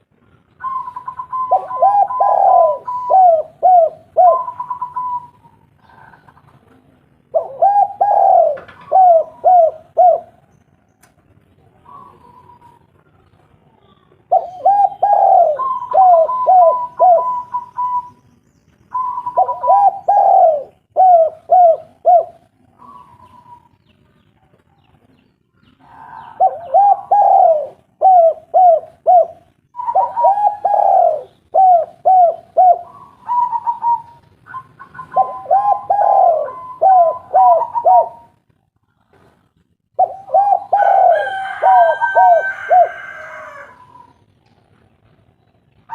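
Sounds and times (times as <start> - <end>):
higher steady bird call: 0.6 - 6.3, 14.3 - 18.3, 25.8 - 38.4
dove cooing: 0.6 - 10.4, 11.8 - 13.1, 14.3 - 18.2, 18.9 - 23.8, 25.8 - 38.4, 39.9 - 44.2.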